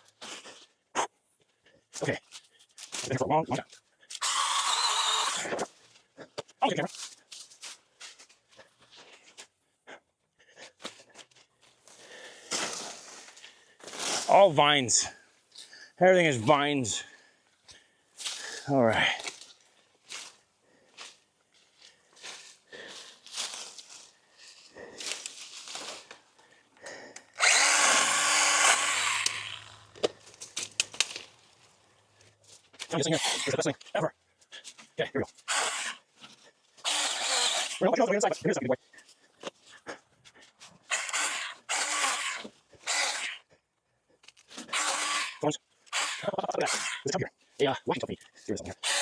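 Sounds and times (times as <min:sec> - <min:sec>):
small chainsaw burst: 0:04.2 - 0:05.5, 0:27.4 - 0:30.0, 0:35.4 - 0:36.0, 0:36.8 - 0:37.9, 0:40.9 - 0:43.4, 0:44.6 - 0:47.0, 0:48.7 - 0:49.0
brush rustling: 0:11.2 - 0:14.4, 0:19.2 - 0:26.4, 0:29.2 - 0:37.0
sharp clicks: 0:28.7 - 0:31.2.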